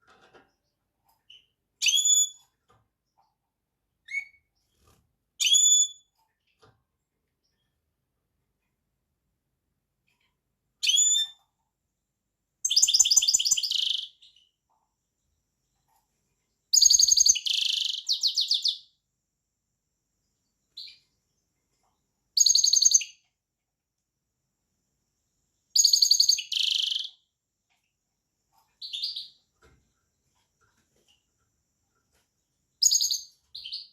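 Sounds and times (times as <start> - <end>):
finch singing: 28.8 - 29.4.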